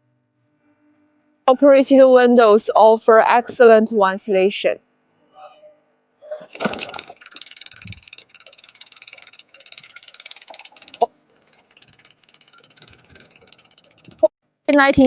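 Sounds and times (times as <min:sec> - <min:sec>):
window crank ratcheting: 0:06.5 - 0:14.3.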